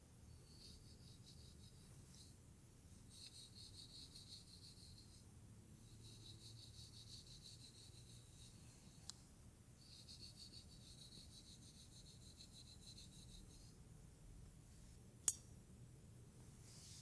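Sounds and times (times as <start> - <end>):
sharp click: 15.2 - 15.5
soft rubbing through hair: 16.5 - 17.0.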